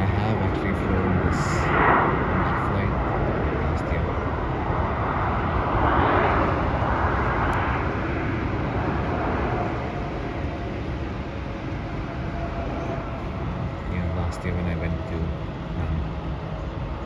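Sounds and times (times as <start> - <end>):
distant jet airliner engine roar: 0.0 - 17.0
faint steady whine: 0.0 - 17.0.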